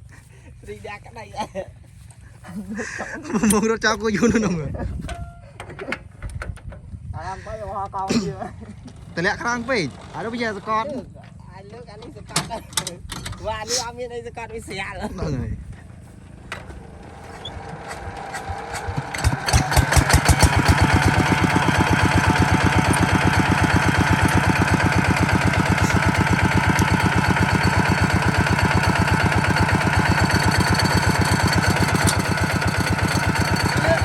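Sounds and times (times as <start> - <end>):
diesel engine starting and chugging: 8.5 - 13.9, 15.6 - 34.0.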